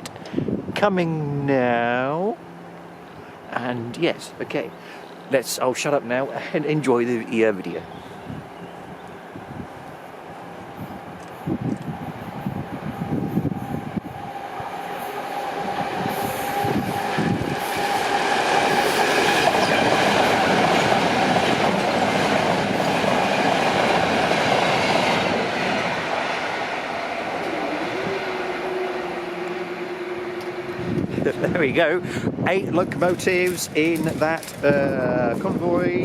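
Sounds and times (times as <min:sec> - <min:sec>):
diesel locomotives passing: 0:01.6 - 0:36.0
wheels on rails: 0:32.8 - 0:35.7.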